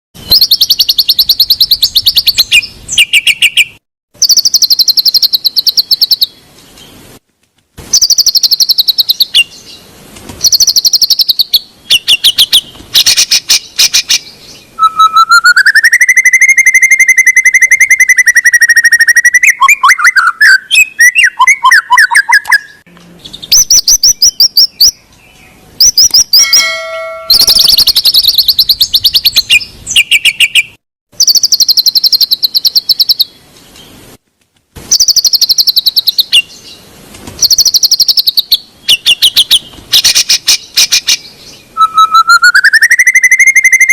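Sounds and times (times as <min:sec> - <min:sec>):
long clear bird whistle: 0:00.2 - 0:06.3, 0:07.9 - 0:09.7, 0:10.4 - 0:14.2, 0:14.8 - 0:22.8, 0:27.3 - 0:33.3, 0:37.4 - 0:43.9
bird singing trilled notes: 0:00.2 - 0:06.9, 0:07.9 - 0:09.8, 0:10.4 - 0:33.4, 0:34.9 - 0:36.8, 0:37.4 - 0:43.9.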